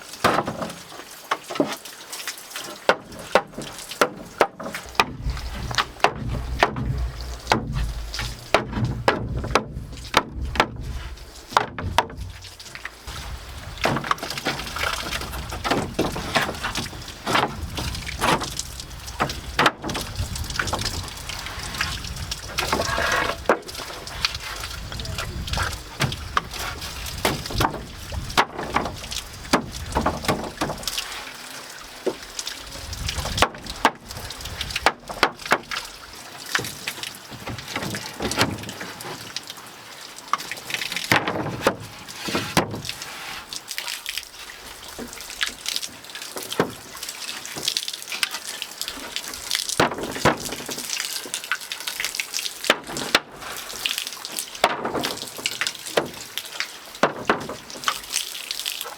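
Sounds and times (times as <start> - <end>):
water splashing and dripping: 0.0 - 58.9
sharp clicks and knocks: 2.9 - 13.0.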